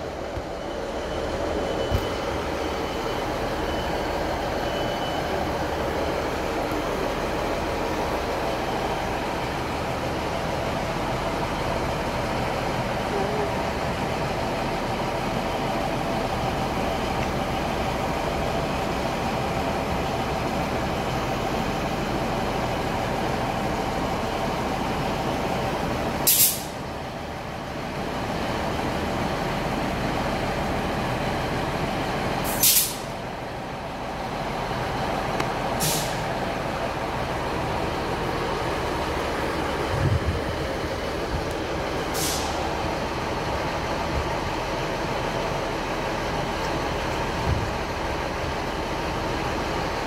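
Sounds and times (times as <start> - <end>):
train humming: 0.0 - 50.0
air brake hisses: 26.2 - 26.8, 32.4 - 33.1, 35.8 - 36.2, 42.0 - 42.7.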